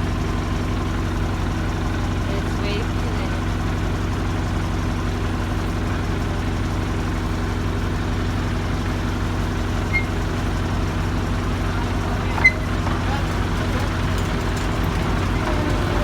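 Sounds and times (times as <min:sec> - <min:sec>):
train engine low hum: 0:00.0 - 0:16.0
brief high squeak: 0:09.9 - 0:10.3, 0:12.3 - 0:12.8.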